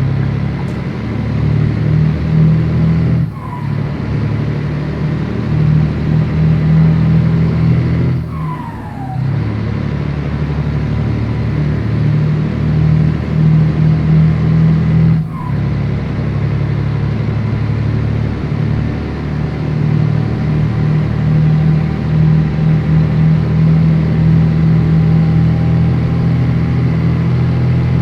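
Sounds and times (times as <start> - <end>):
truck diesel engine droning: 0.0 - 28.0
brief falling whistle: 8.3 - 9.2.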